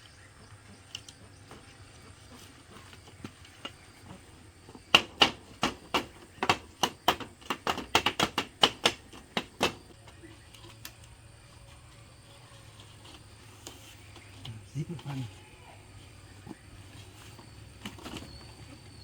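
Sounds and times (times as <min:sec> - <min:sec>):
hand tool striking bamboo: 0:03.1 - 0:10.2.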